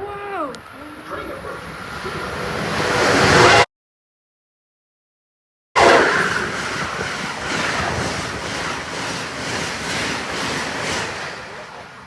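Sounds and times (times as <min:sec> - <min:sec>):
wheels clattering over rails: 0:00.0 - 0:03.4, 0:05.8 - 0:12.0
train passing at speed: 0:00.0 - 0:03.6, 0:05.8 - 0:12.0.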